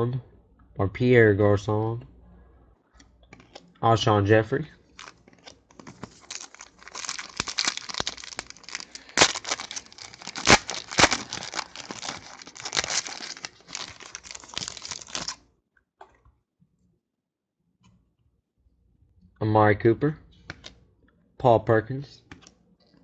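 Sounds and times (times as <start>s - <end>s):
foil wrapper tearing and crinkling: 5.0s - 15.4s.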